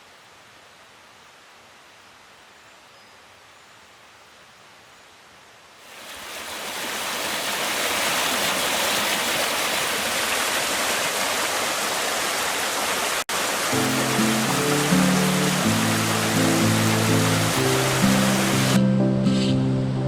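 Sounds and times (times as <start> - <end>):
stream water rushing: 5.8 - 20.0
music: 13.7 - 20.0.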